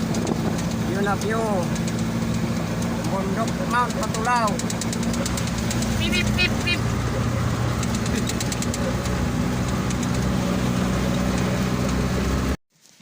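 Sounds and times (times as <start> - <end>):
light rattling ticks: 0.0 - 6.7, 7.7 - 10.4
truck engine running: 0.0 - 12.6.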